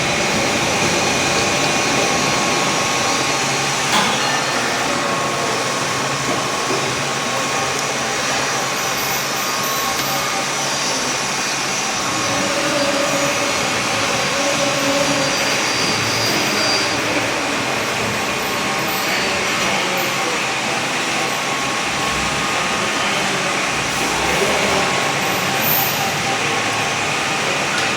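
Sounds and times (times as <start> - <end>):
milling machine whirring: 0.0 - 27.9.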